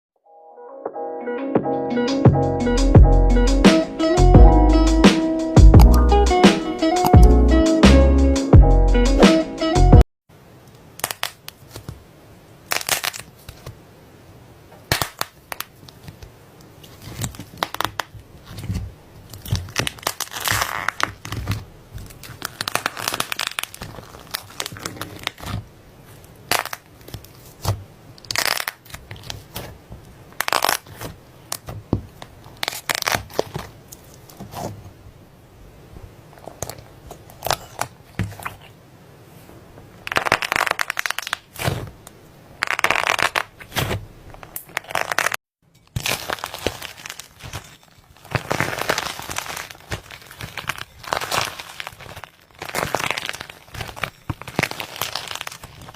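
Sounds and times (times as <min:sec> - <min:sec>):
slime squishing and crackling: 0:11.0 - 0:12.0, 0:12.6 - 0:13.8, 0:14.8 - 0:34.8, 0:36.3 - 0:38.8, 0:40.0 - 0:42.0, 0:42.6 - 0:55.9.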